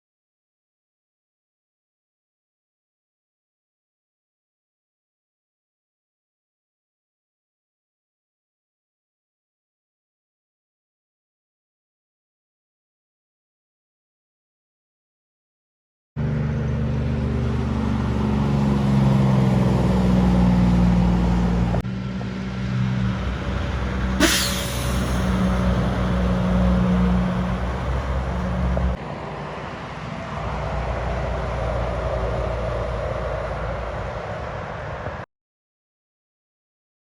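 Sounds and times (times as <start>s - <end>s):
vehicle engine running: 16.2s - 29.0s
falling whine: 22.2s - 29.0s.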